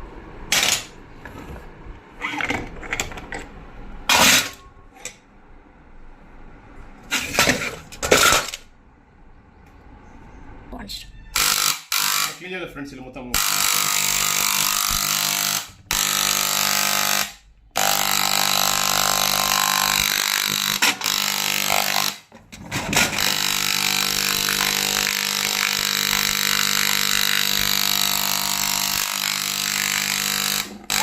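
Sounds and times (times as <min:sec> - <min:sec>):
power tool motor running: 0:11.4 - 0:12.4, 0:13.4 - 0:22.3, 0:23.0 - 0:31.0.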